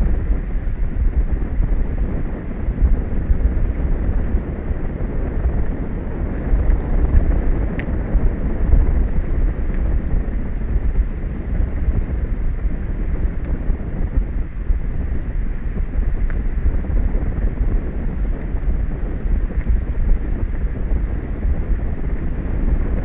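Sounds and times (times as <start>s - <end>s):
wind buffeting microphone: 0.0s - 23.0s
faint tick: 7.7s - 8.0s, 16.2s - 16.4s.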